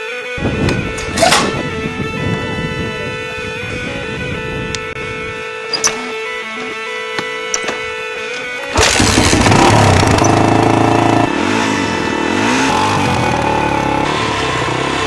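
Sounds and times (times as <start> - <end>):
dirt bike engine revving: 8.7 - 15.0.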